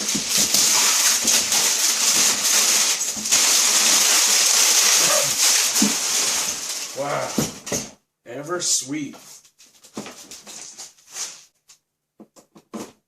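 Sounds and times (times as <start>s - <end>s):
packaging rustling and crinkling: 0.0s - 7.9s, 9.6s - 11.5s.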